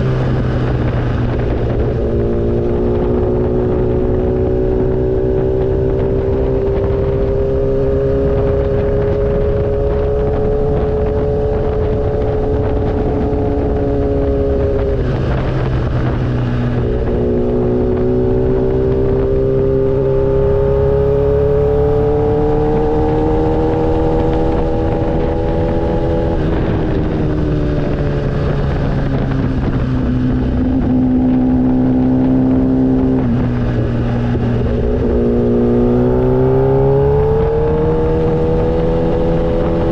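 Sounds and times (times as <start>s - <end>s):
motorcycle engine running: 0.0s - 39.9s
steady rushing noise: 0.0s - 39.9s.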